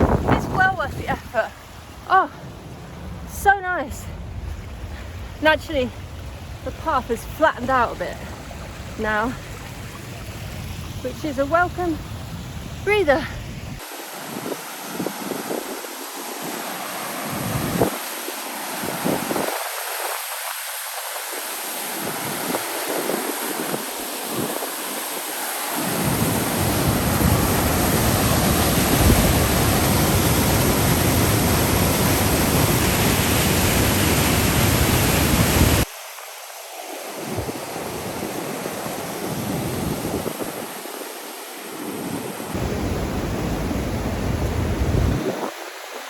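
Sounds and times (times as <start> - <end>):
wind buffeting microphone: 0.0 - 1.8, 25.8 - 35.9, 37.2 - 40.9, 41.9 - 46.0
waterfall rushing: 4.9 - 35.9, 36.7 - 46.0.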